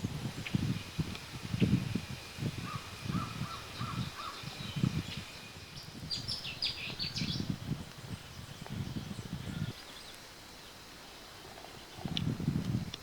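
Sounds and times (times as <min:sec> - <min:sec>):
wind rumble on microphone: 0:00.0 - 0:10.2, 0:10.9 - 0:13.0
wild birds calling: 0:02.6 - 0:07.5.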